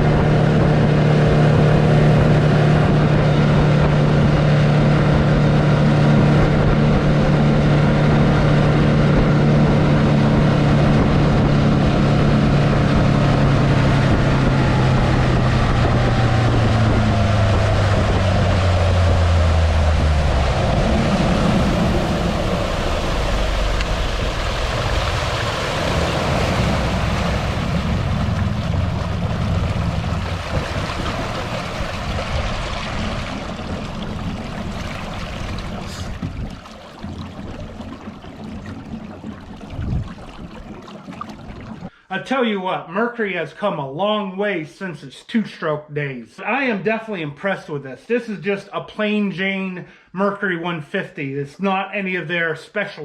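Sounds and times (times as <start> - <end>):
rushing water: 0.0 - 41.9
outboard engine running: 0.0 - 42.1
wind: 0.0 - 42.7.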